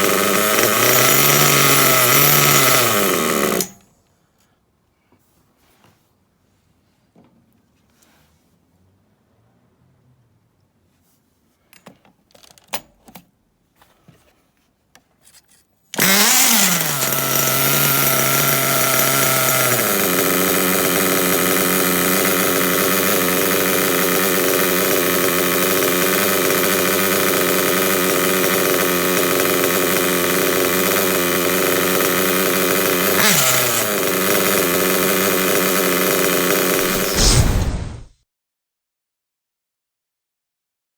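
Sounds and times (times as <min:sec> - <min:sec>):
nitro rc buggy engine: 0:00.0 - 0:03.8, 0:16.0 - 0:38.0.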